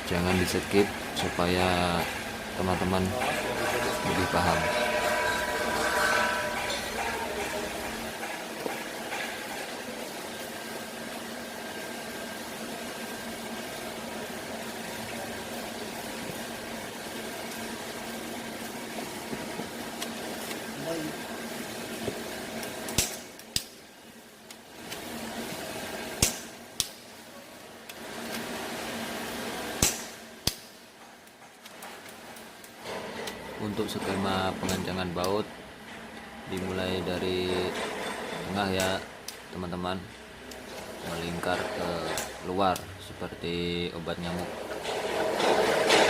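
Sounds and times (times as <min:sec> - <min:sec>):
constant hiss: 0:00.0 - 0:46.0
low mechanical hum: 0:00.0 - 0:46.0.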